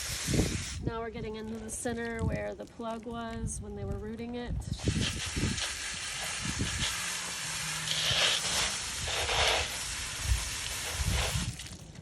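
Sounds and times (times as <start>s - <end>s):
garden hose spray hissing: 0.0s - 0.9s, 4.7s - 11.7s.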